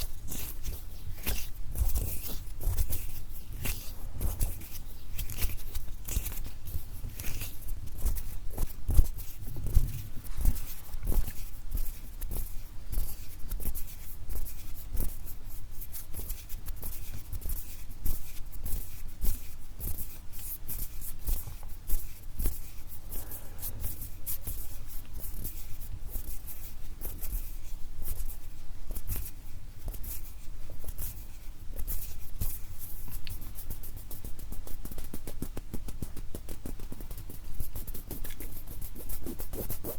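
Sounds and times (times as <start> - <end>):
hand clicks and skin rustles: 0.0 - 39.9
soft low thumps: 9.4 - 11.2.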